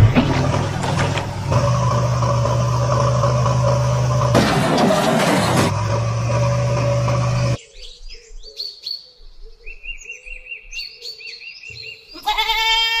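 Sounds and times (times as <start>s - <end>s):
engine-like drone: 0.0s - 7.6s
small birds chirping: 7.6s - 12.3s
goat bleating: 12.1s - 13.0s.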